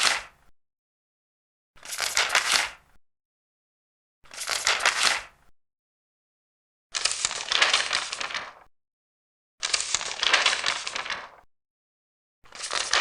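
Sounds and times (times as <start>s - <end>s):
paper pages turning: 1.8s - 2.8s, 4.3s - 5.3s, 7.0s - 8.7s, 9.6s - 11.4s, 12.5s - 13.0s.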